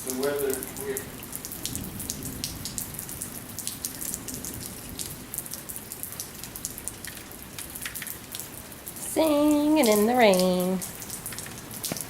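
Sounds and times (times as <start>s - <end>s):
light rain pattering: 0.0s - 12.0s.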